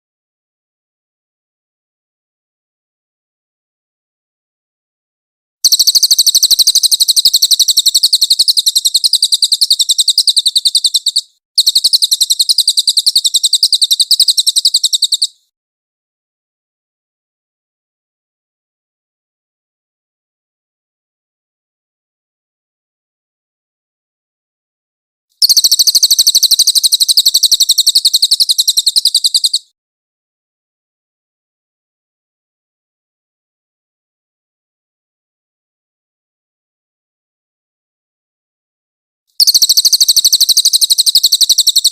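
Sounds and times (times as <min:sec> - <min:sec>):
bird giving rapid high notes: 0:05.6 - 0:15.3, 0:25.4 - 0:29.6
songbird rapid high trill: 0:05.6 - 0:15.4, 0:25.4 - 0:29.6, 0:39.4 - 0:41.9.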